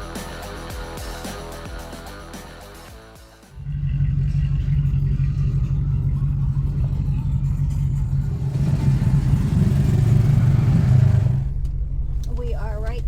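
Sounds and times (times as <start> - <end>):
off-road vehicle engine droning: 3.6 - 13.0.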